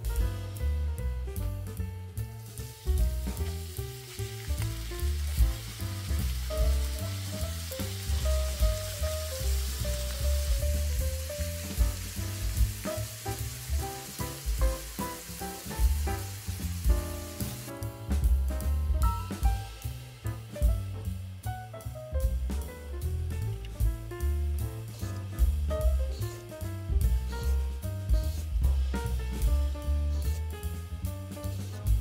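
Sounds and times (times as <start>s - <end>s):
background music with bass line: 0.0s - 32.0s
carrot sizzling in hot oil: 2.1s - 18.2s, 19.1s - 32.0s.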